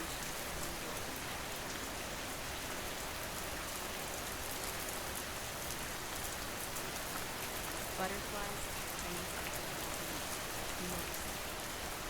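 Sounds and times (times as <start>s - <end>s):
patter of raindrops: 0.0s - 12.0s.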